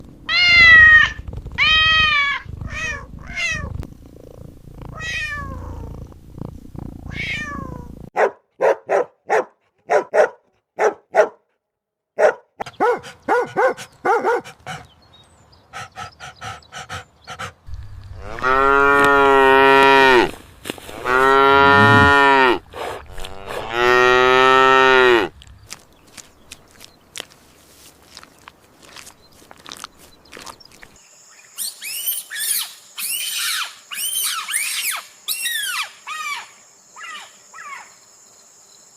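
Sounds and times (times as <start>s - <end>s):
cat meowing: 0.3s - 3.8s, 4.9s - 5.9s, 7.1s - 8.0s
cow mooing: 17.7s - 25.4s.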